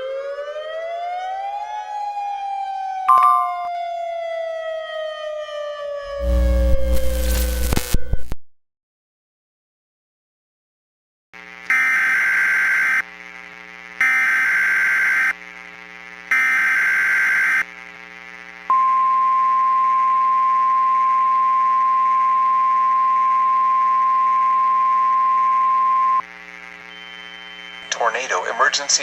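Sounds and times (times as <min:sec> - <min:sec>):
steady high alarm tone: 0:03.1 - 0:04.0, 0:26.9 - 0:28.0
faint steady hum: 0:17.7 - 0:29.0.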